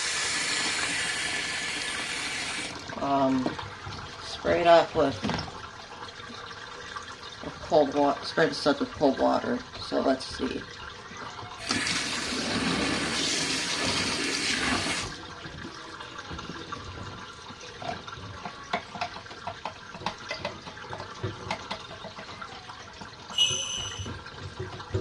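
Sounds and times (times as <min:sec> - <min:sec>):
water spraying into tub: 0:00.0 - 0:03.4, 0:11.6 - 0:15.2
water dripping and trickling: 0:00.0 - 0:25.0
short high-pitched tone: 0:23.3 - 0:24.1.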